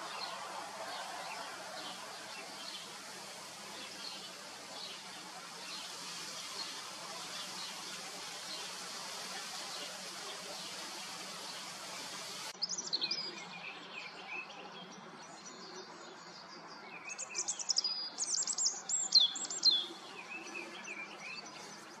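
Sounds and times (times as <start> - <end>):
steady hiss: 0.0 - 12.6
small birds chirping: 0.0 - 14.2, 14.8 - 22.0.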